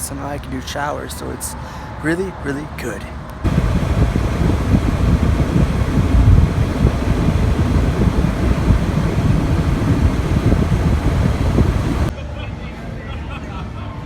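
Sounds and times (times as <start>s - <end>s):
wind buffeting microphone: 3.4s - 12.1s.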